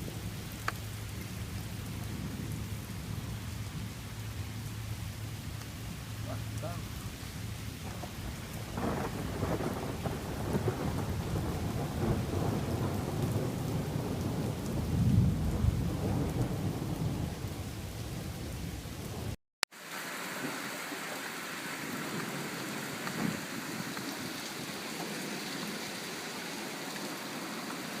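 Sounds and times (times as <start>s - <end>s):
heavy rain falling: 0.0s - 28.0s
thunder rumbling: 5.9s - 19.4s.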